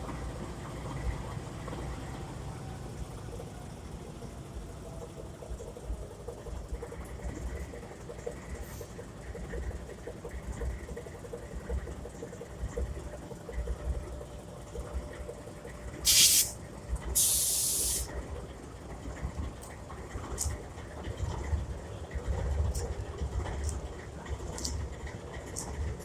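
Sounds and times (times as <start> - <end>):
diesel locomotive idling: 0.0 - 26.0
compressed air hissing: 16.0 - 16.6, 17.2 - 18.1.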